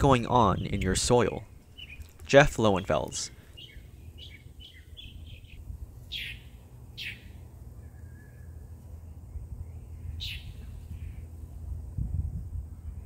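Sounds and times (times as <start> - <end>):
low background rumble: 0.0 - 13.0
bird chirps: 1.7 - 2.2, 3.4 - 11.3
sharp down-slurred bird calls: 1.7 - 2.2, 3.4 - 8.7, 9.3 - 11.4.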